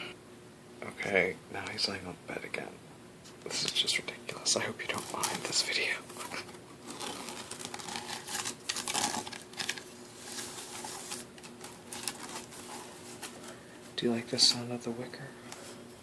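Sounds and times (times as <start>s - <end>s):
scratching on wicker basket: 4.9s - 13.5s.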